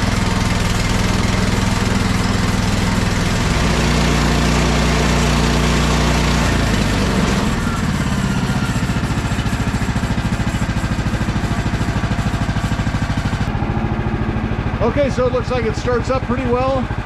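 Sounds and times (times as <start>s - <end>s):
small gasoline engine idling: 0.0s - 17.0s.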